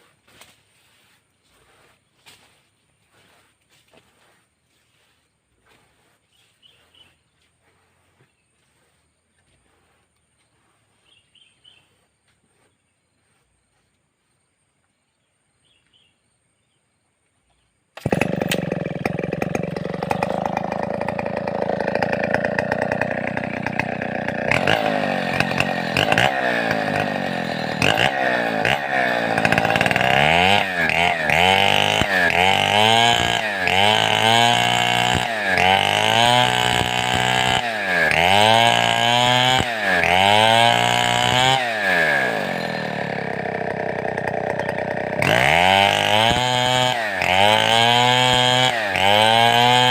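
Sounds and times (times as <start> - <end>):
chainsaw running at high revs: 18.0 - 49.9.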